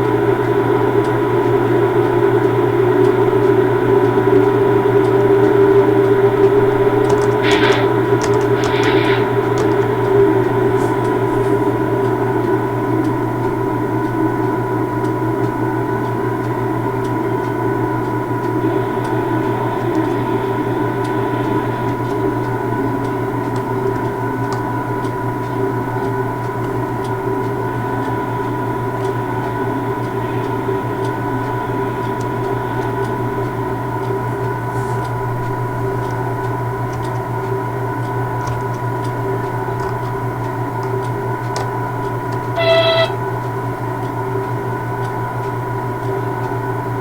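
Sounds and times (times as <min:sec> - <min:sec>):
locomotive humming: 0:00.0 - 0:47.0
faint ticks: 0:04.3 - 0:14.1
brief tonal sound: 0:42.6 - 0:43.2.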